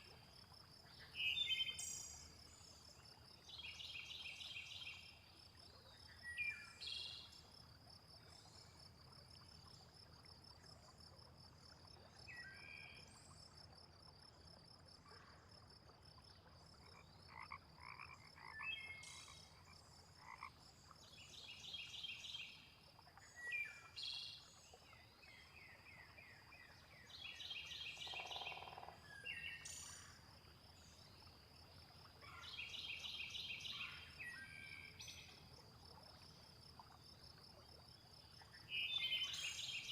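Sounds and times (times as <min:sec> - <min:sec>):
frogs croaking: 0:08.1 - 0:21.0, 0:24.9 - 0:39.9.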